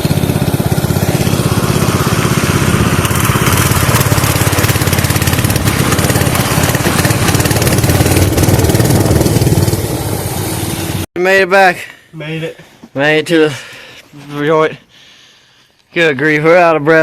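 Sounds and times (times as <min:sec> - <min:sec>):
small engine running: 0:00.0 - 0:11.1.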